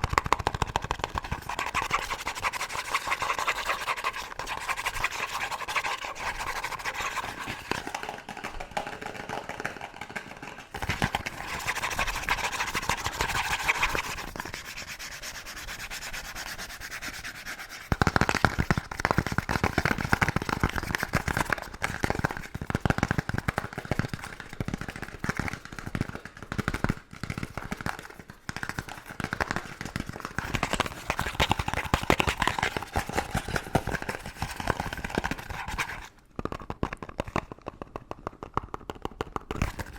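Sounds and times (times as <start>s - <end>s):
rapid tapping: 0.0s - 17.0s
hard scratching on surface: 0.9s - 8.3s, 10.5s - 18.7s.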